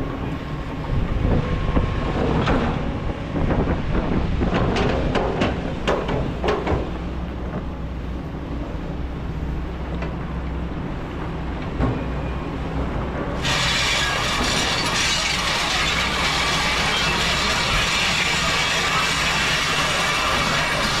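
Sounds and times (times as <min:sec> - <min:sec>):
excavator diesel engine running: 0:00.0 - 0:21.0
metallic clanks and knocks: 0:04.5 - 0:07.0
loud steady hiss: 0:13.4 - 0:21.0.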